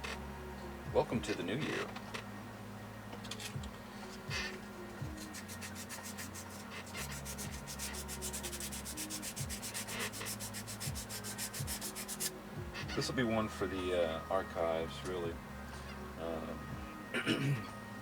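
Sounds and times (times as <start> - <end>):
rapid rubbing strokes: 5.0 - 12.4.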